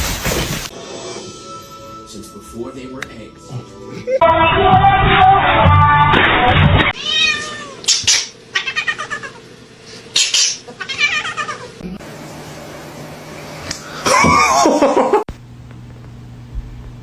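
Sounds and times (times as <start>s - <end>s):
background music: 0.7s - 4.2s
cat meowing: 7.0s - 7.9s, 8.5s - 9.4s, 10.8s - 11.7s.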